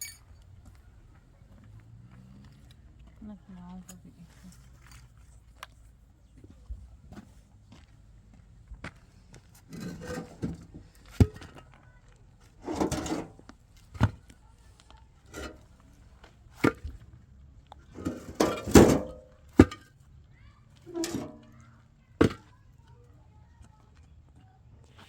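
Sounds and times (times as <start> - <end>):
scraping: 9.6 - 11.4, 12.6 - 13.4, 17.9 - 19.8, 20.9 - 21.6.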